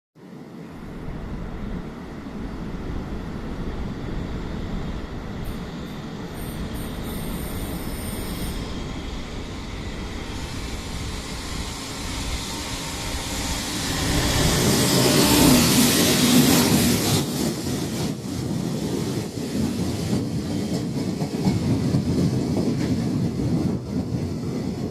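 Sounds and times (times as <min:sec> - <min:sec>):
freight train rail rumble: 0:00.2 - 0:24.9.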